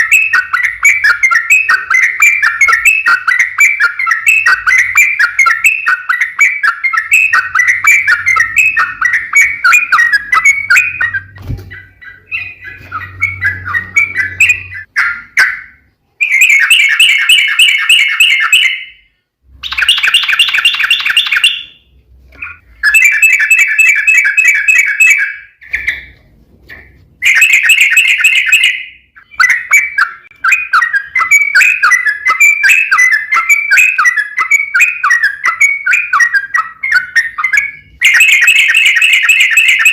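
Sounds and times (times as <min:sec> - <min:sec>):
bird chattering: 0:19.6 - 0:21.8.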